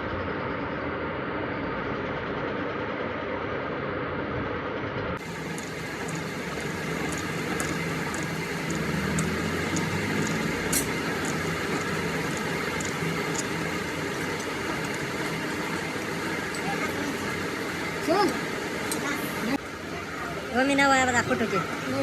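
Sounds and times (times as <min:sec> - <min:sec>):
workshop machine running: 0:05.2 - 0:22.0
faint regular ticks: 0:05.3 - 0:15.8.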